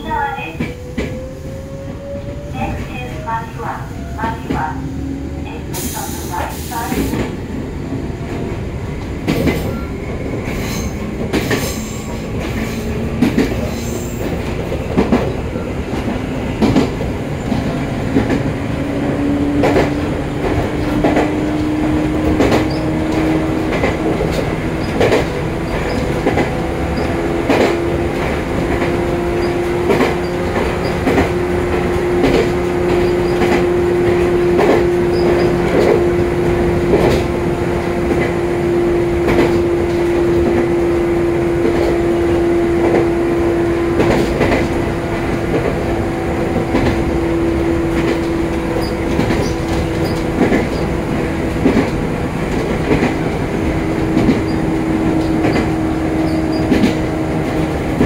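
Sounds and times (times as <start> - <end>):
electric train hum: 0.0 - 58.0
wheels clacking over rail joints: 47.9 - 58.0.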